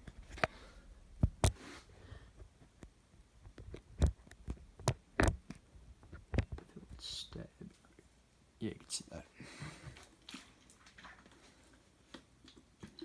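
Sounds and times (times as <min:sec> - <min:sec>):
camera handling knocks and thumps: 0:03.7 - 0:05.4.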